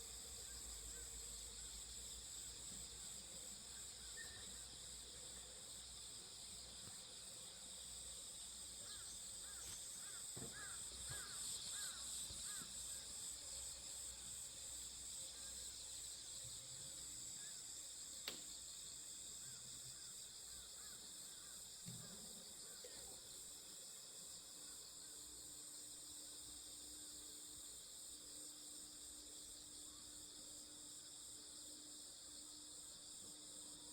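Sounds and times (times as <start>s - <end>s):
crickets and insects chirping: 0.0s - 33.9s
sharp click: 18.2s - 18.5s.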